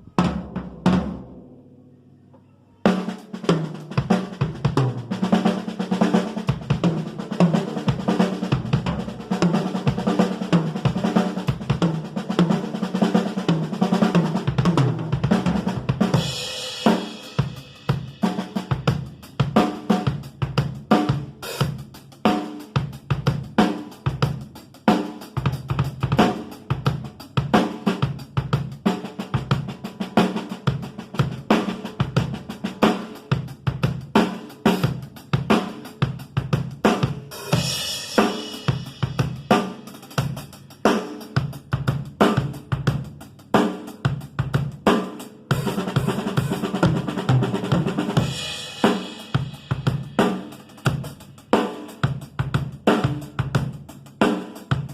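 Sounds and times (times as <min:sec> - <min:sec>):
kick drum and snare strokes: 0:30.7 - 0:54.9.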